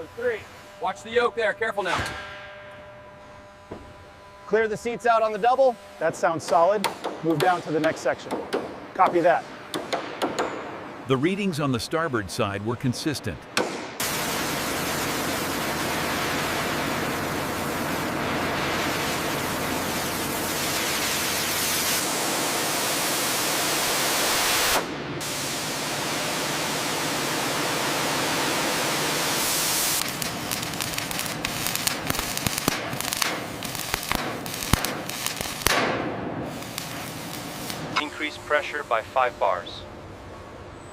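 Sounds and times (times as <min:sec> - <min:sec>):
loud steady hiss: 0:00.0 - 0:40.4
crackling and popping: 0:29.9 - 0:37.9.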